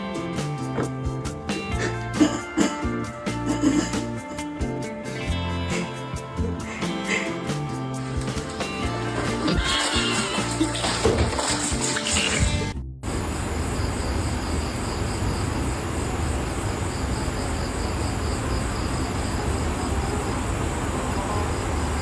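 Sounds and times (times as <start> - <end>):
low hum and hiss: 13.0 - 22.0
insects chirping: 13.1 - 22.0.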